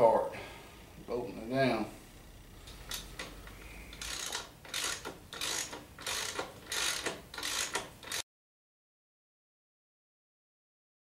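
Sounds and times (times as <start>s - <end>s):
ratchet wrench clicking: 2.9s - 8.2s.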